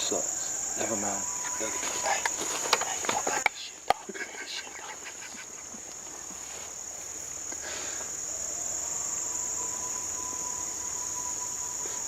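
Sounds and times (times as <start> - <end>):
howl call: 0.0 - 3.0, 8.0 - 12.0
distant coyotes howling: 0.0 - 12.0
insect chorus: 0.0 - 12.0.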